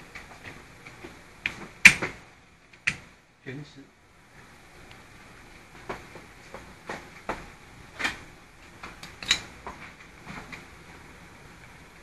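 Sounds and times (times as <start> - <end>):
metal parts clicking and knocking: 9.0 - 9.5.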